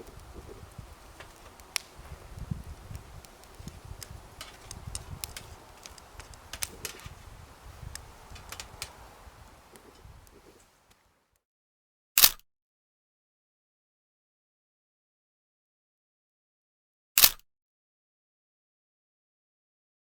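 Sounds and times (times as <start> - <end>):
sharp clicks and crackles: 0.0 - 11.0.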